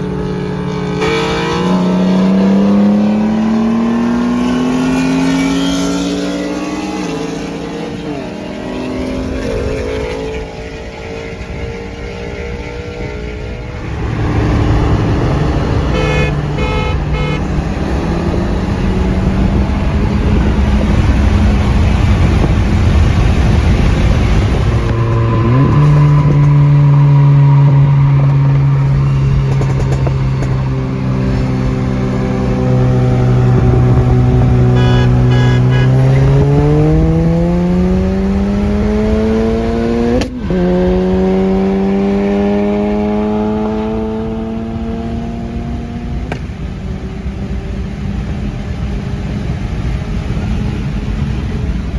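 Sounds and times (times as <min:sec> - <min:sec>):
car engine accelerating: 0:00.0 - 0:51.9
short high beeps: 0:15.9 - 0:17.4, 0:34.7 - 0:36.2.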